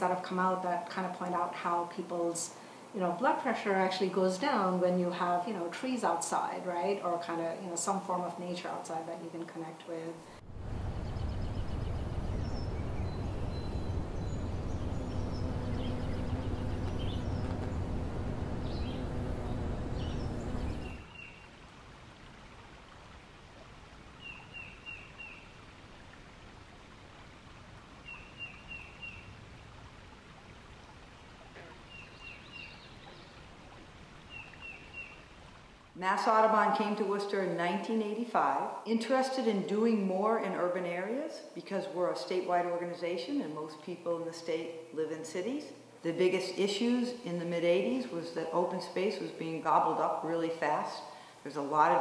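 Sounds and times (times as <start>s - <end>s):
steady outdoor noise: 0.0s - 37.4s
low hum: 10.4s - 21.1s
bird chirps: 10.8s - 21.4s.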